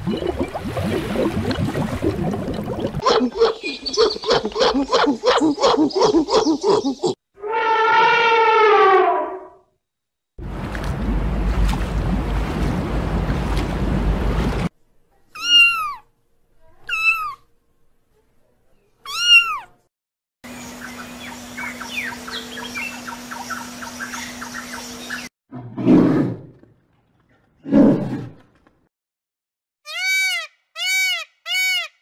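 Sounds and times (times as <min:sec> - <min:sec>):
cat meowing: 0:19.1 - 0:19.7.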